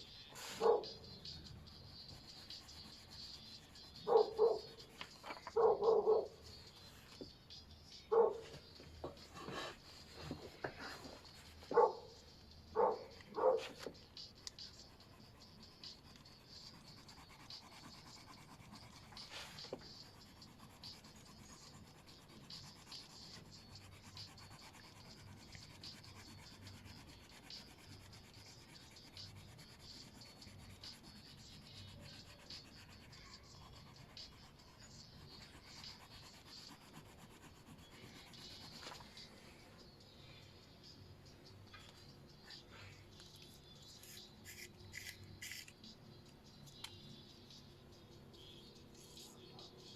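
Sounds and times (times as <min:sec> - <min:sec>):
drawing tool rubbing on paper: 0:00.0 - 0:07.2, 0:08.5 - 0:39.4.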